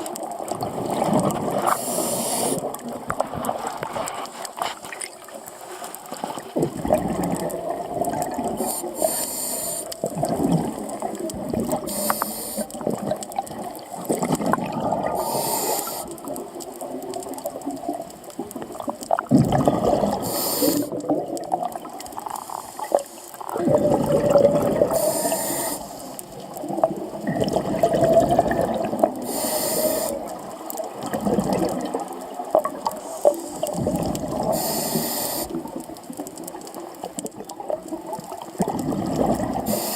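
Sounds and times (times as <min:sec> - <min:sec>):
exhaled air bubbling: 0:00.0 - 0:39.9
regulator hiss on inhale: 0:01.6 - 0:02.8, 0:08.5 - 0:10.1, 0:11.8 - 0:12.9, 0:15.1 - 0:16.3, 0:20.2 - 0:21.0, 0:22.2 - 0:23.5, 0:24.9 - 0:26.5, 0:29.2 - 0:30.6, 0:32.9 - 0:33.8, 0:34.4 - 0:35.8, 0:39.6 - 0:39.9.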